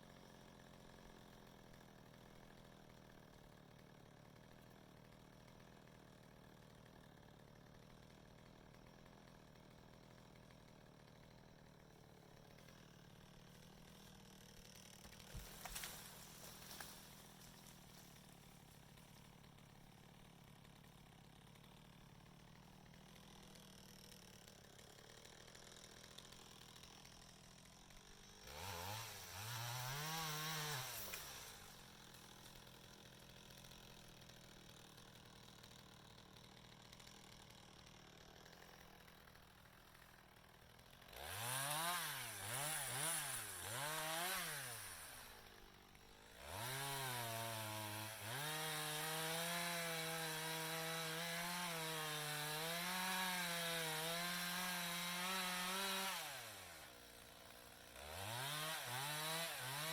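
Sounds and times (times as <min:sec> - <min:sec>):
two-stroke chainsaw revving: 0:00.0 - 0:59.9.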